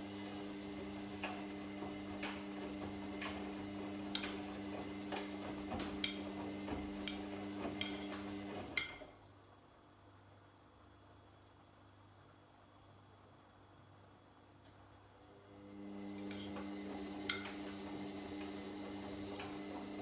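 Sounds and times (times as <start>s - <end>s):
washing machine motor hum: 0.0s - 9.1s, 15.2s - 20.0s.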